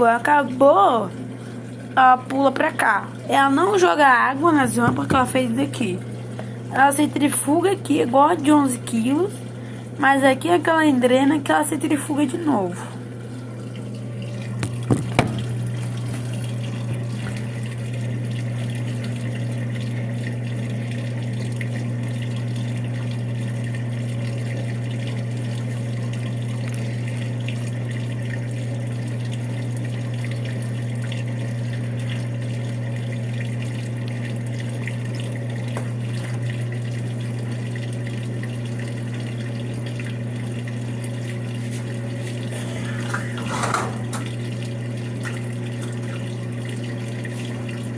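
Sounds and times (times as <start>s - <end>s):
washing machine draining and spinning: 0.0s - 47.9s
short knocks: 14.6s - 15.5s.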